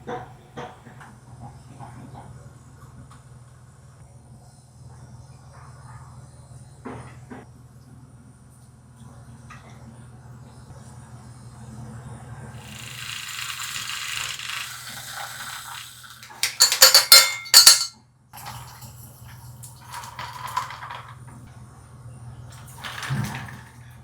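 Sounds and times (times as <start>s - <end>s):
glass clinking and rattling: 12.7s - 18.0s, 19.9s - 21.2s
kitchen clatter: 12.7s - 21.5s, 22.5s - 24.0s.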